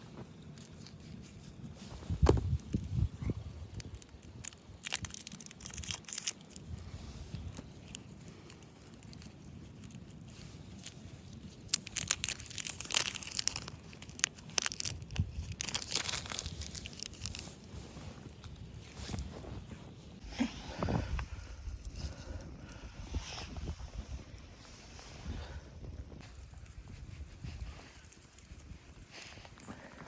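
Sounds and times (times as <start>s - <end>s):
crunching and crinkling: 0.0s - 30.0s
faint low rumble: 6.6s - 30.0s.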